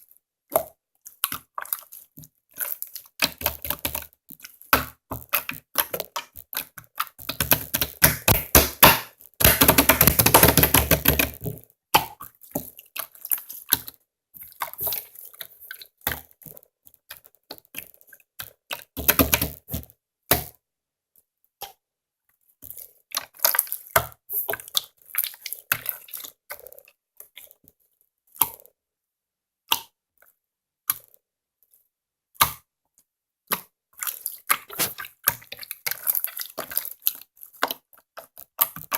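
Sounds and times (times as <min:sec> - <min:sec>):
slime squeezed with sticky pops: 0:33.5 - 0:38.9.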